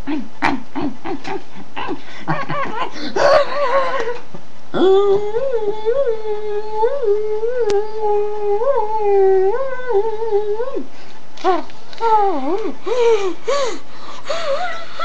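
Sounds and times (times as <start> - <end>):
person making high-pitched noise: 0.0 - 4.2.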